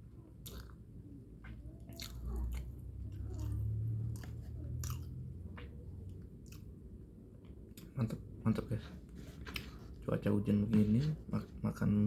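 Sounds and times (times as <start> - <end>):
wet chewing: 0.4 - 0.8, 1.4 - 6.8.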